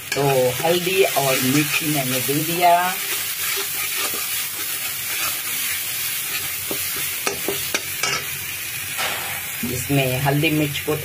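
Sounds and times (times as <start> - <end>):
paste sizzling in hot oil: 0.0 - 11.0
metal spatula scraping pan: 3.0 - 8.3.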